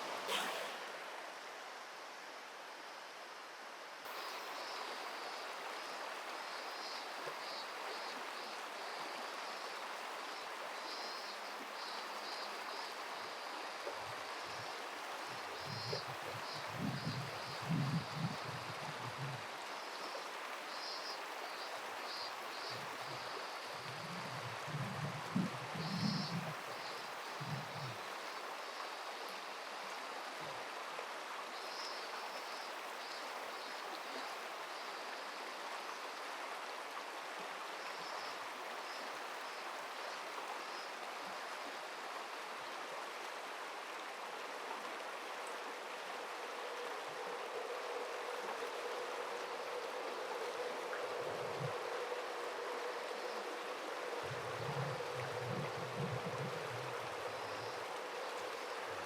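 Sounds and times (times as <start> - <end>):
river water rushing: 0.0 - 16.5, 28.0 - 59.0
faint steady hum: 43.9 - 59.0.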